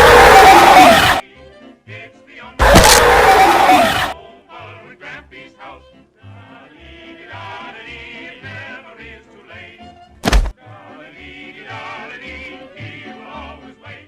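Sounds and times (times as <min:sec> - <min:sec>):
loud burst of noise: 0:00.0 - 0:01.2, 0:02.6 - 0:04.2
warbling singing voice: 0:00.0 - 0:01.2, 0:02.6 - 0:04.2.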